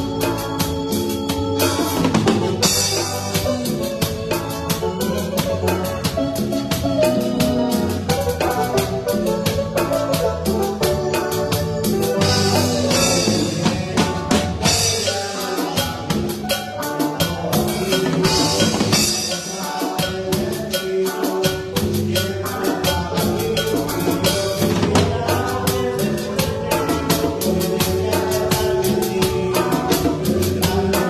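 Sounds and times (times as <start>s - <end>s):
band music: 0.0s - 31.0s
fast drum kit strokes: 0.0s - 31.0s.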